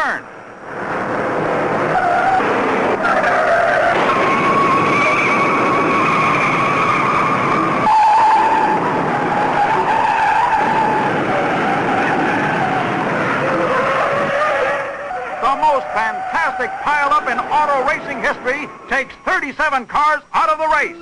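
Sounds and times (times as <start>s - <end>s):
car engines: 0.0s - 21.0s
tyres screeching: 1.9s - 21.0s.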